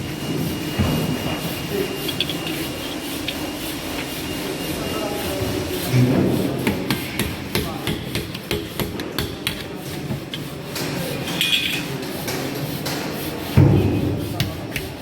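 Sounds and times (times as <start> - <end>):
hammer tapping on metal: 6.6 - 11.7, 14.4 - 15.0.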